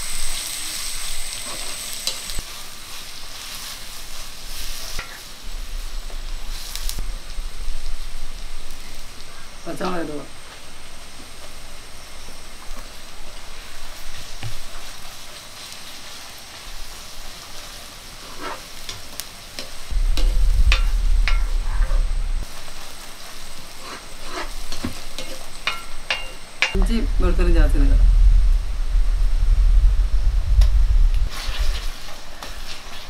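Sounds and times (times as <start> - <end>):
onions sizzling in hot oil: 0.0 - 27.4, 31.2 - 33.0
low rumble: 5.3 - 9.6, 19.9 - 22.6, 26.8 - 31.8.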